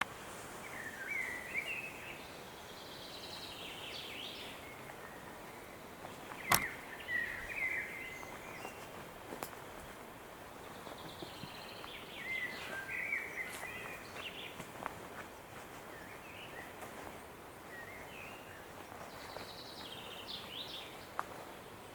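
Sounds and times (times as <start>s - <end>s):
steady background hiss: 0.0s - 21.9s
songbirds singing: 0.1s - 21.9s
sharp click: 6.5s - 6.8s.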